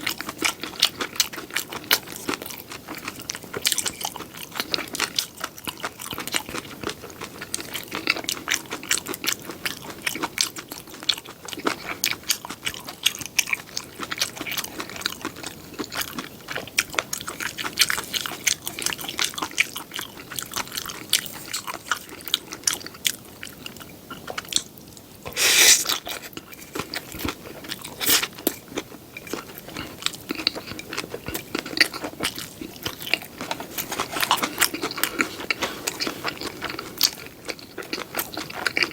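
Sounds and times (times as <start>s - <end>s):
wet chewing clicks: 0.0s - 38.9s
crunchy bites: 25.3s - 28.5s.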